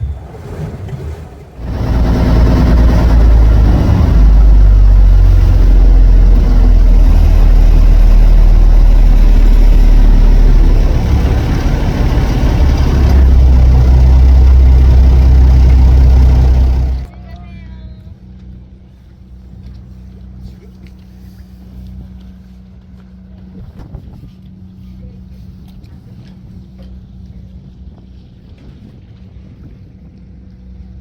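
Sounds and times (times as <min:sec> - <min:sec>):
rushing water: 0:00.0 - 0:17.1
boat engine droning: 0:00.0 - 0:31.0.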